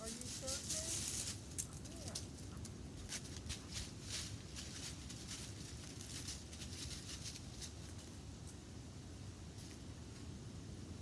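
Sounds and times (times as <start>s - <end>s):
short rustles and crackles: 0.0s - 8.2s.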